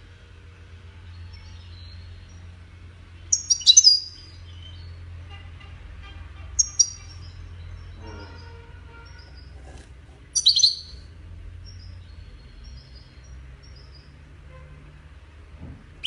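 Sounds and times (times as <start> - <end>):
finch twittering chirps: 1.0 - 2.6, 3.2 - 5.1, 6.6 - 9.6, 10.2 - 14.3.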